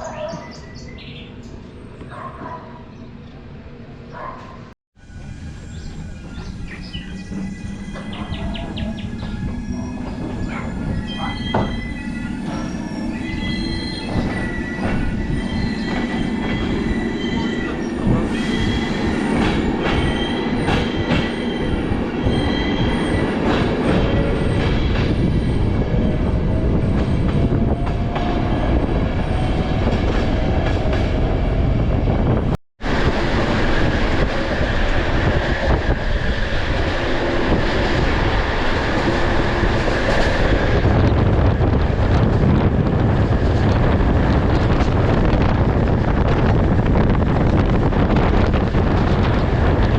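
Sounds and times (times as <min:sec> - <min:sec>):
rushing train running noise: 0:00.0 - 0:49.9
train wheels squealing: 0:05.2 - 0:26.0
rail joint clicks: 0:07.2 - 0:12.8, 0:14.0 - 0:25.4.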